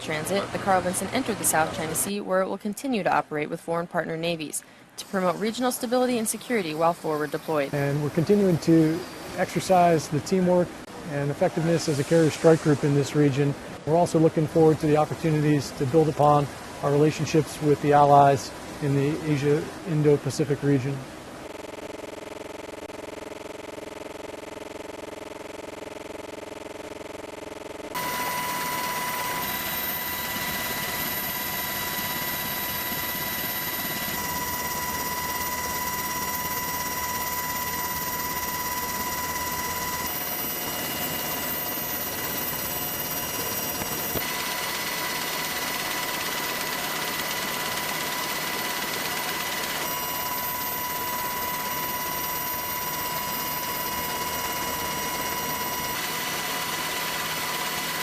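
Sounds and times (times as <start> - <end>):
aircraft engines roaring with whine: 0.0 - 2.2, 27.3 - 58.0.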